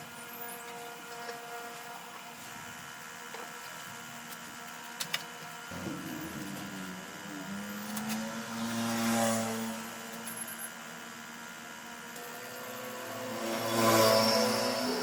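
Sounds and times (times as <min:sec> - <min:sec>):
motor running: 0:05.6 - 0:15.0.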